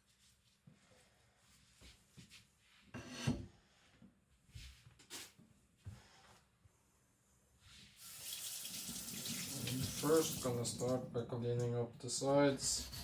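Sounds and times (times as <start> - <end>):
water tap running: 8.0 - 11.1.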